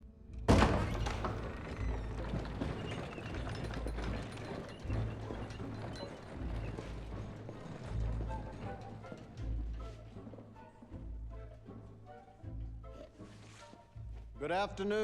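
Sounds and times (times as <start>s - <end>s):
soft music: 3.7s - 15.0s.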